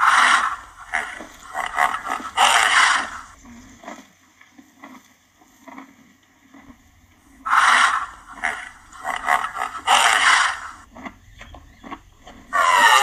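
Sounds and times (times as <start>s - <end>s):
rhinoceros breathing noisily: 0.0s - 4.0s, 6.5s - 11.0s.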